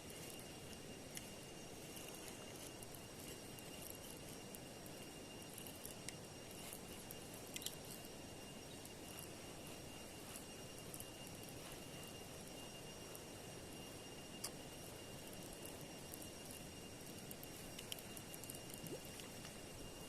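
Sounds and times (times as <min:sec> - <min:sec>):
high-pitched insect drone: 0:00.0 - 0:20.0
small sharp clicks: 0:07.5 - 0:07.8.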